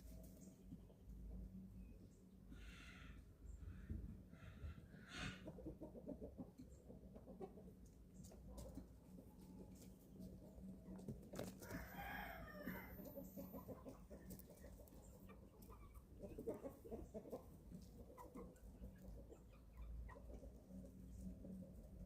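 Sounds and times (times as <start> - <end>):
chickens clucking and peeping: 0.0 - 22.0
chicken drawn-out call: 2.6 - 5.7, 11.4 - 14.1.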